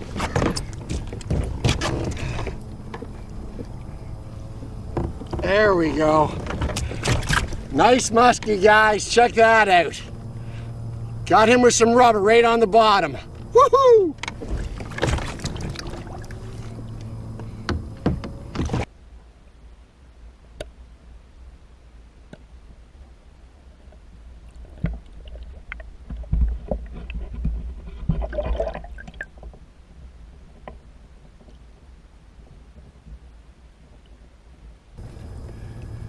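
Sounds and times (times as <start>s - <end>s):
water sloshing around kayak: 0.0s - 18.9s.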